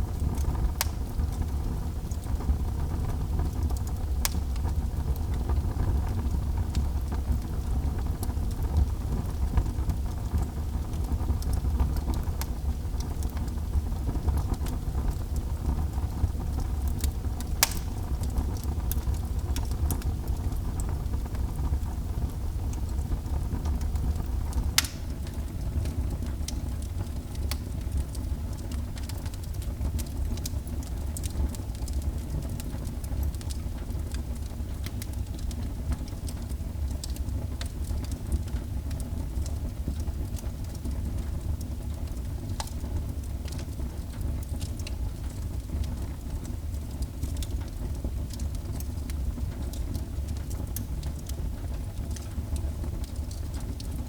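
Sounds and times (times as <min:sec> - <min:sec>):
fire burning in fireplace: 0:00.0 - 0:54.0
sharp fire pop: 0:17.6 - 0:18.2, 0:24.8 - 0:25.4.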